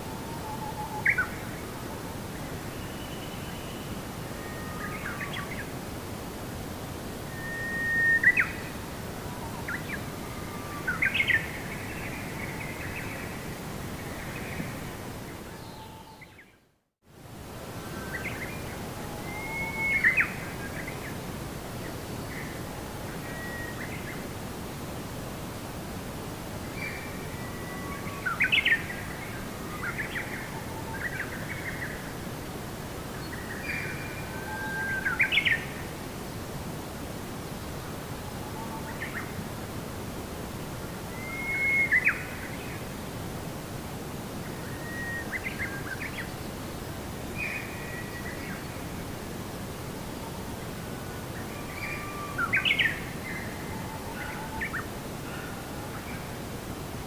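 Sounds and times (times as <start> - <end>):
steady outdoor hiss: 0.0 - 57.0
songbird chirping and whistling: 7.3 - 8.6, 41.2 - 42.4.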